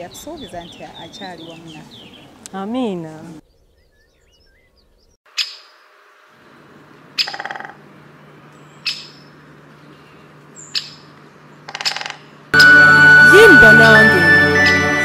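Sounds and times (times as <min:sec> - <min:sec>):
bird chirps: 0:00.0 - 0:02.4, 0:03.4 - 0:05.9
bird rattle call: 0:07.2 - 0:07.8, 0:11.7 - 0:12.3.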